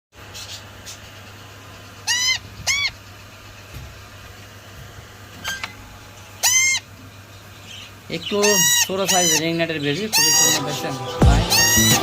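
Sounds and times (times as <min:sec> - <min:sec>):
parakeet chick screeching: 0:01.9 - 0:03.2, 0:06.4 - 0:12.0.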